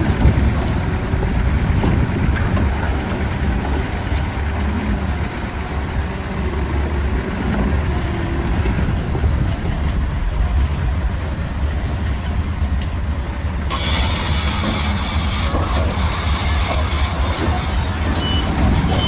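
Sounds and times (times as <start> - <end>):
bulldozer diesel engine rumbling: 0.0 - 19.0
high scraping screech: 13.7 - 19.0.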